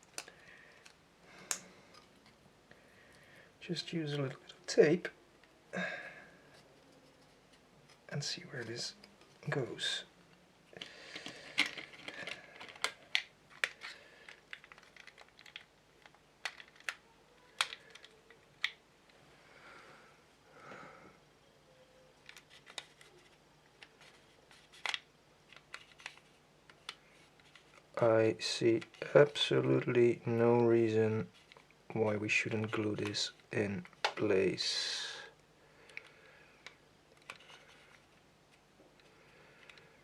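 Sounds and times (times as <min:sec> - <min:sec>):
plastic parts clicking: 0:00.0 - 0:02.4, 0:10.7 - 0:18.8, 0:22.2 - 0:27.9, 0:35.9 - 0:38.1.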